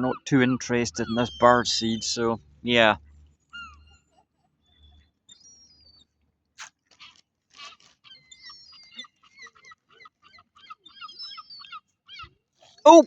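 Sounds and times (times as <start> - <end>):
gulls calling: 0.0 - 3.0
brief crunches: 6.6 - 8.1.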